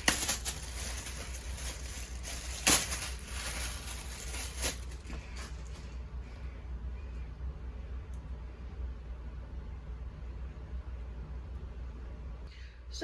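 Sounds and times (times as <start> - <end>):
handling clicks and rustles: 0.0 - 6.0
steady low hum: 0.0 - 13.0.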